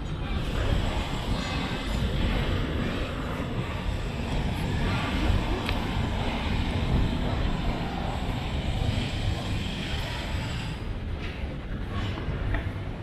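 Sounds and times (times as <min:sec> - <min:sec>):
city vehicle rumble: 0:00.0 - 0:13.0.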